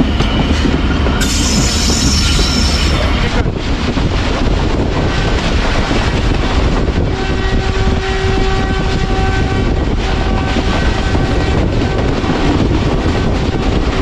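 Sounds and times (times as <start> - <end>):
train wheels rumbling: 0.0 - 14.0
train horn long note: 7.0 - 12.5.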